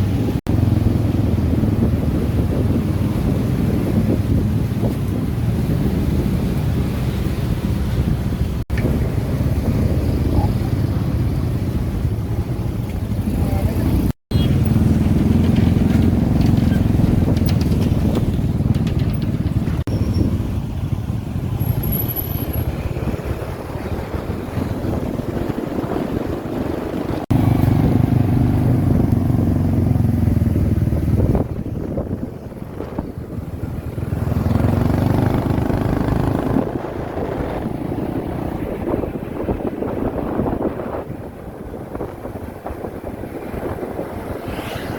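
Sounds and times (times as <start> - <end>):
motorbike engine running: 8.7 - 38.9.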